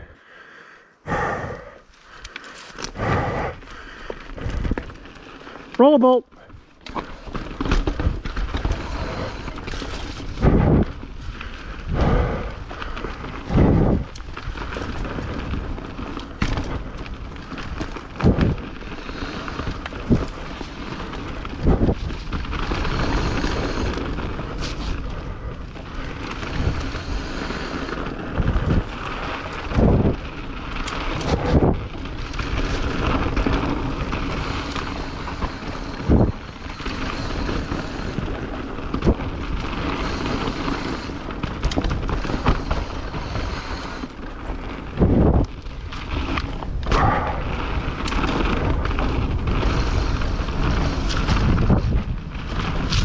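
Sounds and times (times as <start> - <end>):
tyre and wind rush: 1.0 - 53.0
bike thumping over roots and rocks: 3.6 - 5.8, 6.4 - 53.0.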